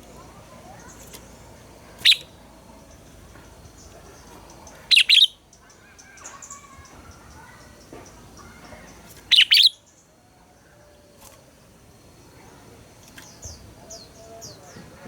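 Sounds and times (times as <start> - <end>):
bulbul singing: 0.0 - 10.1
faint bird chirps: 0.1 - 3.1, 3.7 - 11.4.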